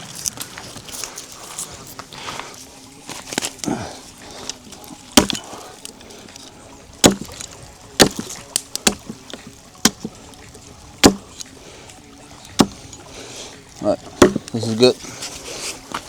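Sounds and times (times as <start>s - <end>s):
blade chopping wood: 4.4s - 6.0s, 7.0s - 11.6s, 12.3s - 13.3s, 13.9s - 16.0s.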